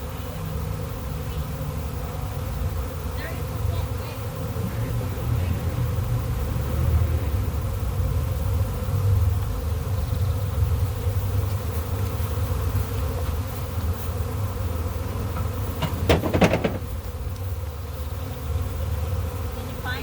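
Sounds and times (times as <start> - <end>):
bee swarm buzzing: 0.0 - 20.0
sharp knocks: 15.3 - 16.9.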